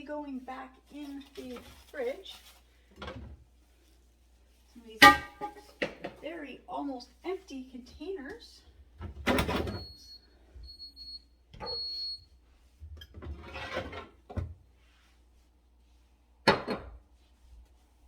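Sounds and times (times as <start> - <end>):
refrigerator alarm beeps: 9.6 - 12.3.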